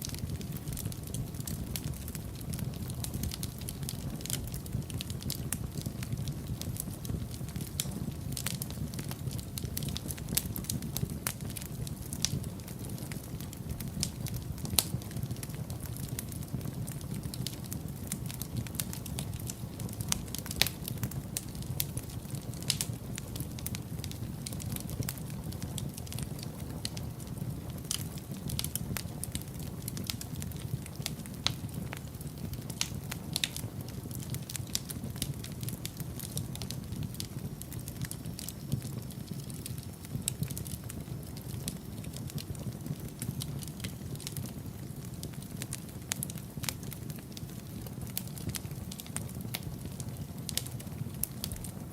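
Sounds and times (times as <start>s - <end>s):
fire crackling and popping: 0.0s - 51.9s
fire flames rumbling: 0.0s - 51.9s.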